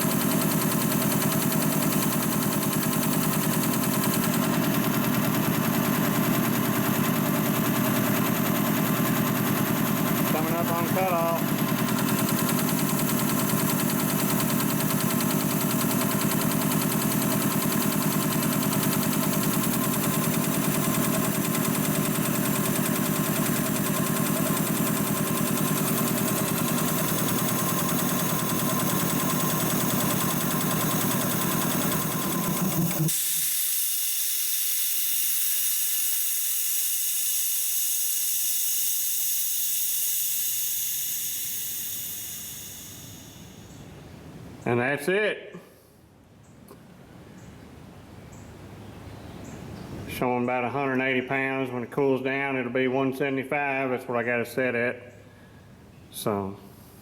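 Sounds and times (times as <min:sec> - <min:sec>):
air compressor pump running: 0:00.0 - 0:44.6
air hissing: 0:09.2 - 0:43.8.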